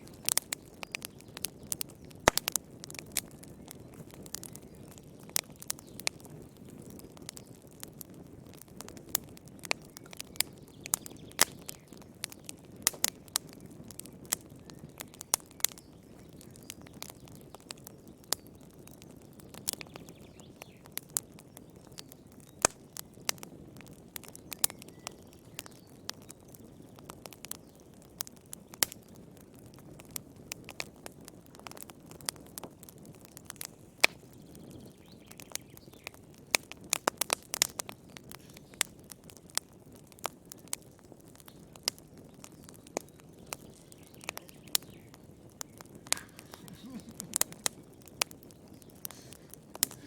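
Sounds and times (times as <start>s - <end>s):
wood fire crackling: 0.0s - 50.0s
low rush of flame: 36.3s - 50.0s.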